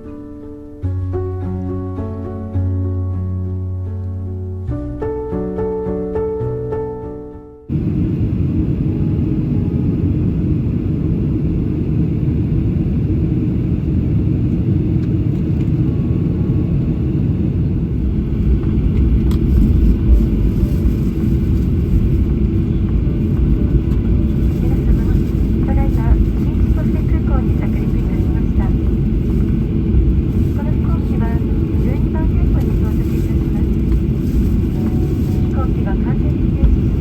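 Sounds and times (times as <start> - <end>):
airliner cabin rumble: 7.7 - 37.0.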